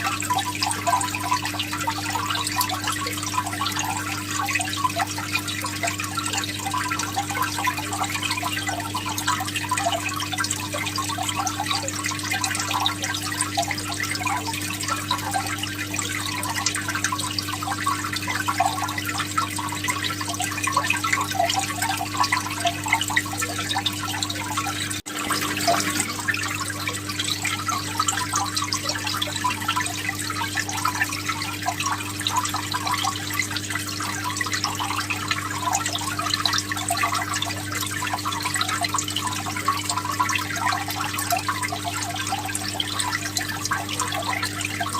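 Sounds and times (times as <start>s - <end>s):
low electrical hum: 0.0s - 44.9s
water splashing and trickling: 0.0s - 44.9s.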